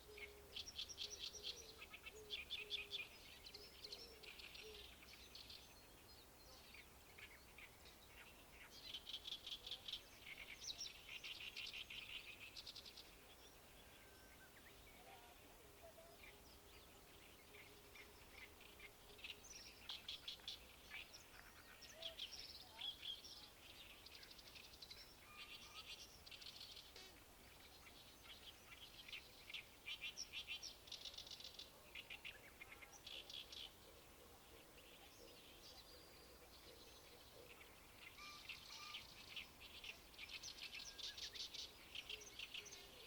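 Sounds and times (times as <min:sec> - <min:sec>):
birds singing rattling chirps: 0:00.0 - 0:43.0.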